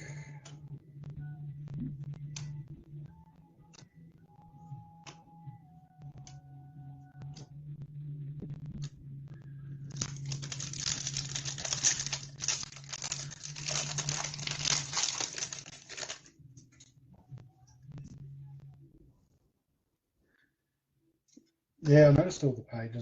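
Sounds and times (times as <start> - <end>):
foil wrapper tearing and crinkling: 9.9 - 16.3.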